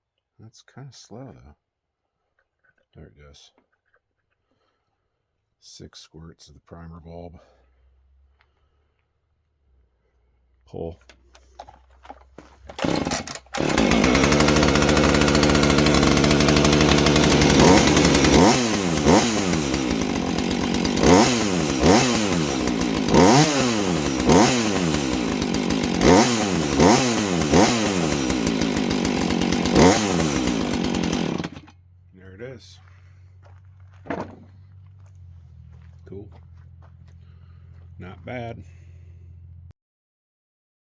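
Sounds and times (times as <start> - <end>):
chainsaw pull-start: 11.1 - 31.8
chainsaw revving: 12.4 - 31.8.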